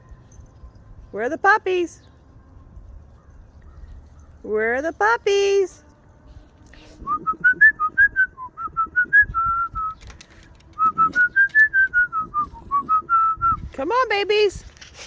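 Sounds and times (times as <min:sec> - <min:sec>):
person whistling a tune: 0:07.0 - 0:10.0, 0:10.8 - 0:13.7.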